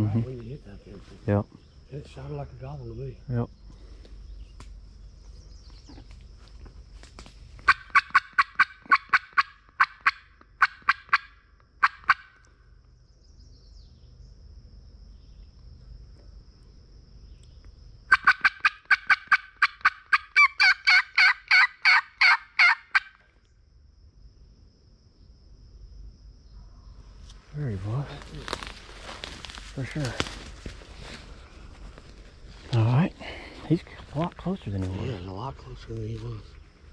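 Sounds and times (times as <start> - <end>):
faint insect drone: 0.0 - 36.9
turkey call yelps: 7.6 - 12.4, 18.1 - 23.2.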